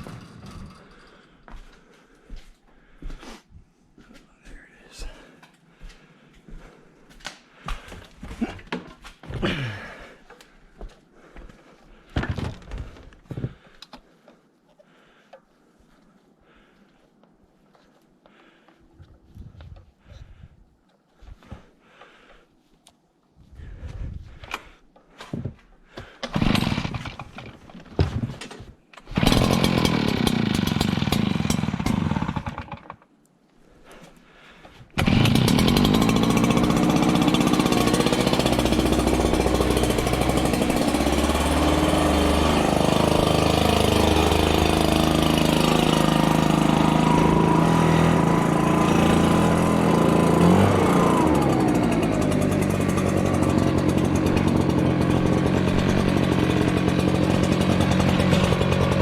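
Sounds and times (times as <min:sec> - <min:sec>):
snowplow engine running: 0:35.1 - 0:59.0.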